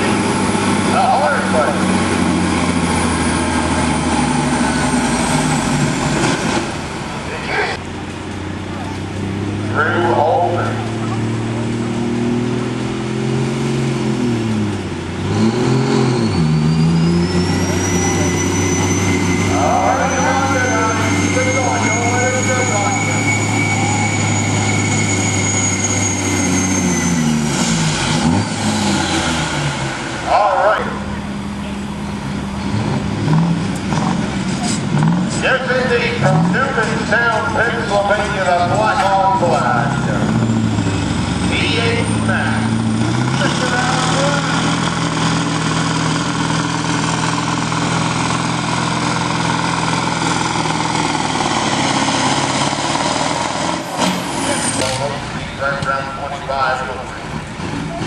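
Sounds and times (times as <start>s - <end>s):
diesel truck engine under load: 0.0s - 58.0s
high whine: 16.0s - 34.0s.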